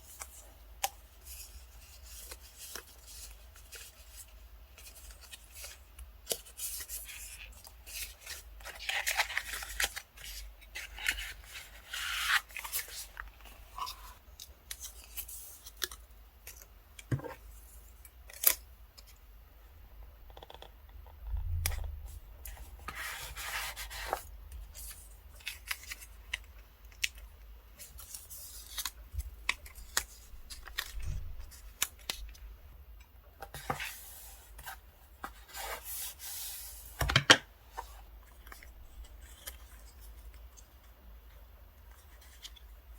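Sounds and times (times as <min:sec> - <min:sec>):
paper rubbing and rustling: 0:01.2 - 0:14.2, 0:22.5 - 0:26.2.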